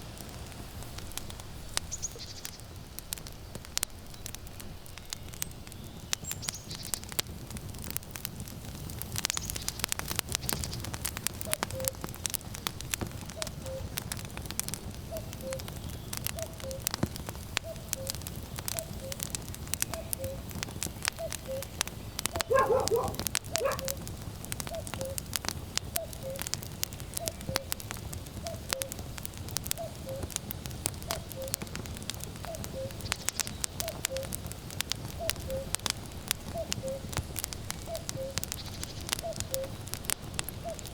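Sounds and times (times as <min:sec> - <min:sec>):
firewood crackling and popping: 0:00.0 - 0:40.9
cuckoo calling: 0:11.5 - 0:12.0, 0:13.4 - 0:14.0, 0:15.1 - 0:15.7, 0:16.3 - 0:16.9, 0:17.6 - 0:20.5, 0:21.2 - 0:24.0, 0:24.7 - 0:25.2, 0:26.0 - 0:26.5, 0:29.8 - 0:30.3, 0:31.1 - 0:31.6, 0:32.4 - 0:34.4, 0:36.5 - 0:37.1, 0:37.8 - 0:39.8.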